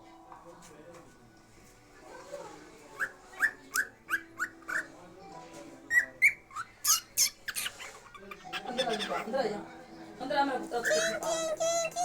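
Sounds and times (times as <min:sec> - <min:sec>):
parrot chirping calls: 0:02.9 - 0:05.0, 0:05.9 - 0:09.4, 0:10.8 - 0:12.0.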